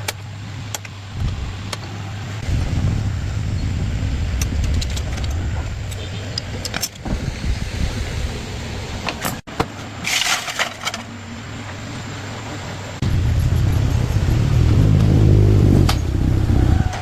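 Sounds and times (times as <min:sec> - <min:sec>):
motorcycle engine running: 0:13.0 - 0:17.0.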